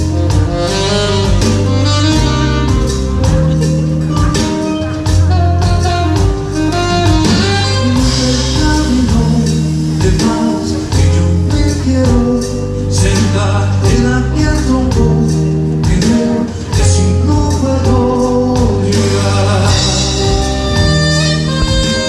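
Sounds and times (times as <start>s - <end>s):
percussion: 0.0s - 22.0s
plucked guitar: 0.0s - 22.0s
steady bass line: 0.0s - 22.0s
person singing: 6.7s - 22.0s.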